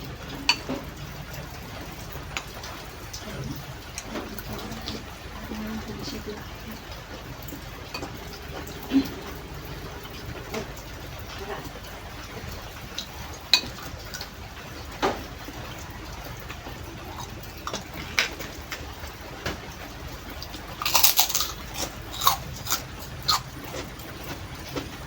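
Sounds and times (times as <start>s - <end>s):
crisp crunching: 20.8s - 23.9s.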